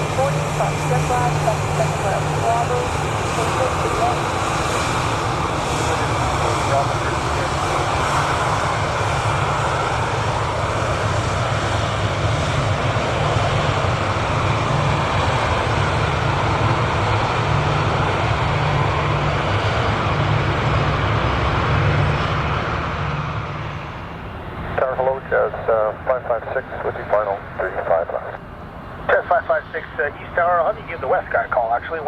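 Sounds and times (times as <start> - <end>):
jet airliner engines roaring: 0.0 - 32.0.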